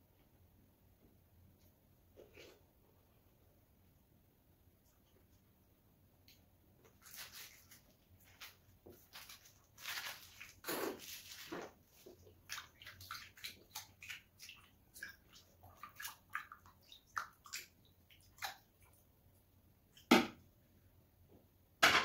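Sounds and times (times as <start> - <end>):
wet chewing squelches: 9.2 - 19.1.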